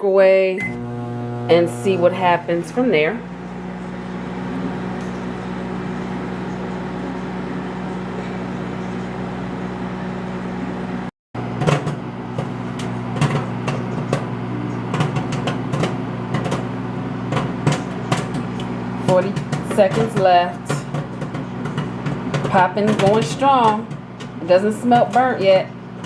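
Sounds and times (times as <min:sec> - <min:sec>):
microwave oven humming: 0:00.0 - 0:26.0
popcorn popping in a paper bag: 0:11.4 - 0:26.0.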